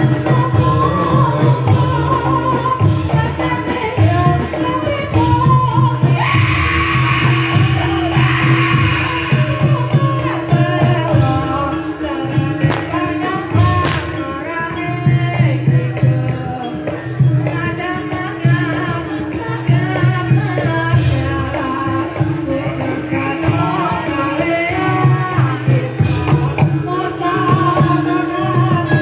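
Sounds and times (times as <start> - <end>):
hand drums beating: 0.0 - 29.0
person singing: 0.0 - 29.0.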